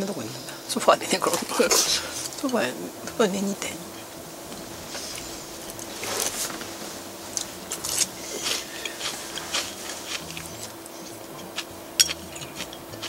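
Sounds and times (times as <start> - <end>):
faint steady hum: 0.0 - 13.0
chewing and mouth smacks: 7.3 - 13.0
chopsticks clicking on bowl: 7.4 - 13.0.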